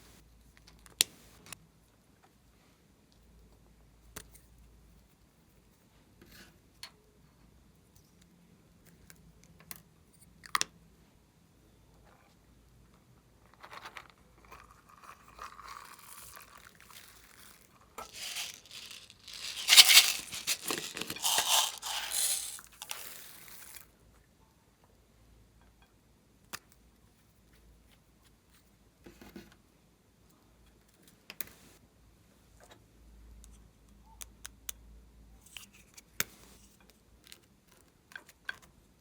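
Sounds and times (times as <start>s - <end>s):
slime crackling and crinkling: 15.3s - 23.8s.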